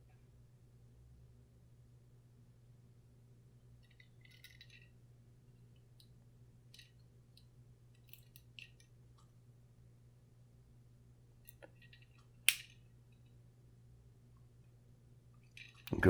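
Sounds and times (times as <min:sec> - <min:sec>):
toy car clicks and clinks: 0:03.8 - 0:04.9, 0:11.5 - 0:12.8.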